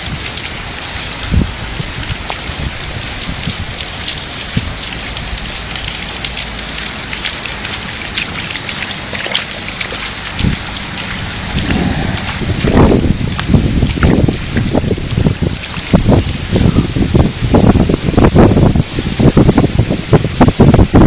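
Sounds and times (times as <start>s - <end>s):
rain downpour: 0.0s - 21.0s
low thumps: 11.2s - 15.0s.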